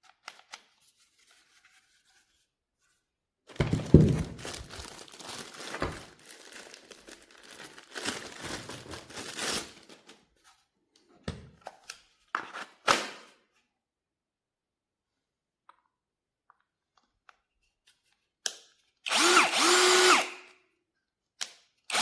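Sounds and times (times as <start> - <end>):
packaging crinkling and rustling: 3.5 - 10.4
sharp knocks: 3.6 - 4.6.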